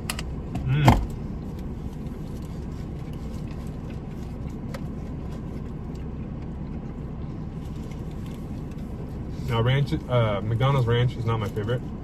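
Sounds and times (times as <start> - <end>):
car rumble from inside: 0.0 - 12.0
faint clicks of food handling: 1.5 - 8.9.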